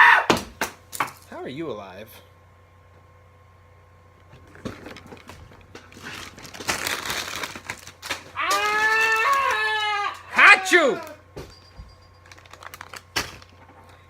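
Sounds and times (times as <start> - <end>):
wrapper crinkling and rustling: 4.4 - 11.1, 12.2 - 14.0
long vocal wail: 8.4 - 11.2.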